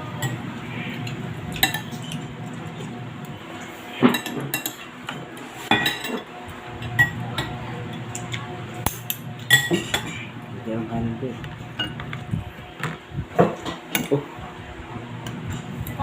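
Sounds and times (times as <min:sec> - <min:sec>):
cutlery clinking on plates: 0:04.0 - 0:06.3.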